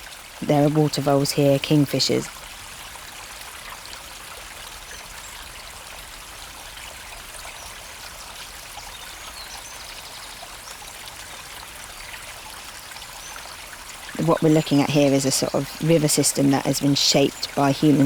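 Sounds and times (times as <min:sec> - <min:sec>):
river water trickling: 0:00.0 - 0:18.0.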